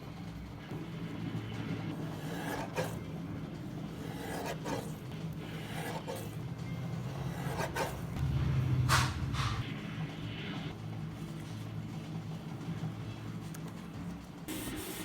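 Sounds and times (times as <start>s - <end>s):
steady low hum: 0.0s - 15.0s
rubbing scraping strokes: 3.9s - 6.4s, 7.0s - 8.2s.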